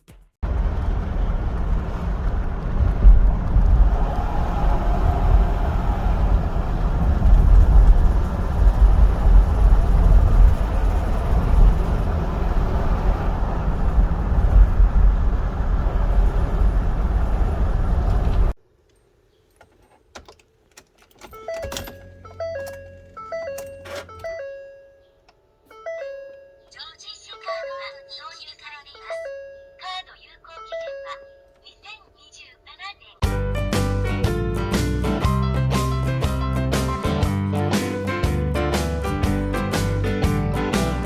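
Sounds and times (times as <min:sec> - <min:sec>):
car engine and road rumble: 0:00.4 - 0:32.6
chiming melody: 0:21.4 - 0:26.7.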